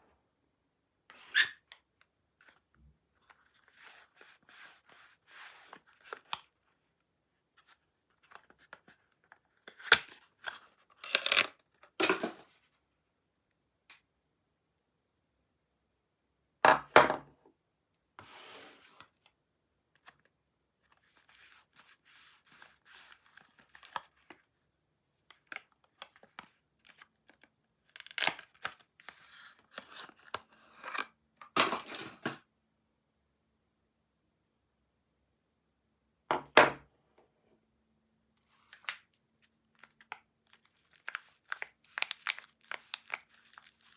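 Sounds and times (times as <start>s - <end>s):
wrapper tearing and crinkling: 27.9s - 28.7s, 39.8s - 43.9s.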